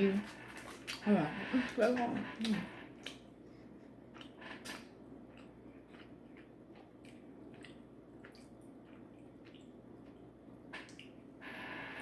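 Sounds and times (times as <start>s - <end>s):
faint chewing: 0.0s - 11.3s
wet mouth clicks and smacks: 4.2s - 6.1s.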